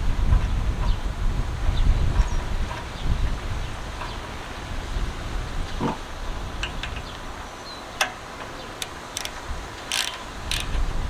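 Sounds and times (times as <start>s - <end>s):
wind rumble on microphone: 0.0s - 11.0s
metallic hand tool clicks: 8.8s - 10.8s.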